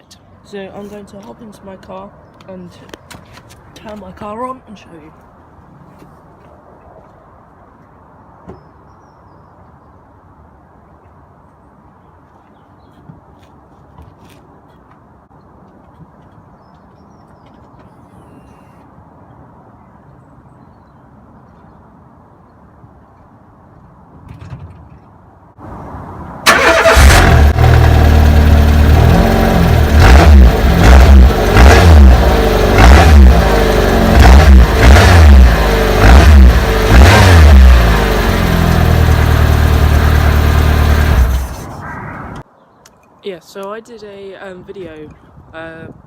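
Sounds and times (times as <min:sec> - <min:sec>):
car engine cranking: 0:26.5 - 0:41.8
car engine revving and idling: 0:26.5 - 0:41.8.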